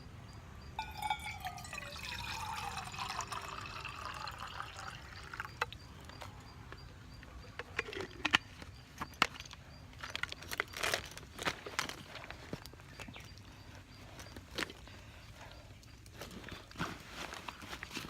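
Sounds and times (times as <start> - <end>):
water pouring into a container: 0.8 - 5.6.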